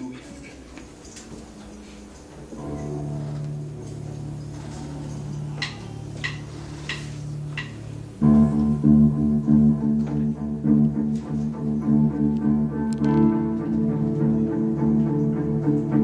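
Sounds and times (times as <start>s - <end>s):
held low note: 2.5s - 14.8s
band playing with bass and guitar: 2.6s - 16.0s
count-in ticks: 4.8s - 7.9s.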